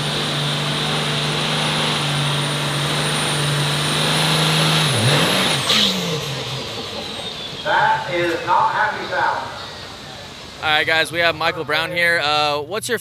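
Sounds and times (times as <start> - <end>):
truck engine at high revs: 0.0 - 11.9.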